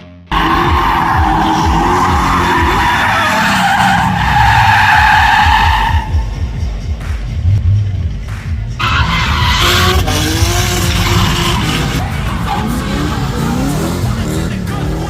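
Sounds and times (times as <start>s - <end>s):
tyres squealing: 0.4s - 6.3s
car engine revving hard: 9.0s - 15.0s.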